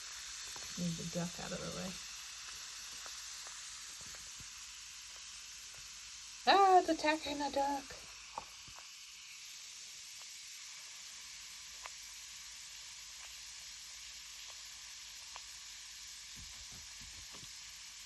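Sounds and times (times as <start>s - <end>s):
bath bomb fizzing in water: 0.0s - 18.0s.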